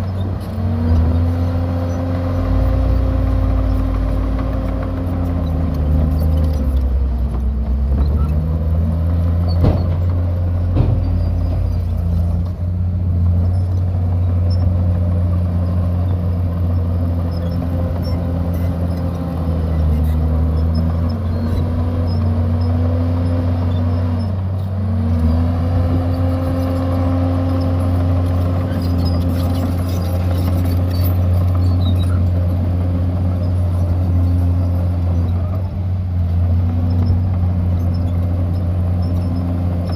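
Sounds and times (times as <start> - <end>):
heavy diesel engine under load: 0.0 - 39.9
short knocks: 9.6 - 12.1.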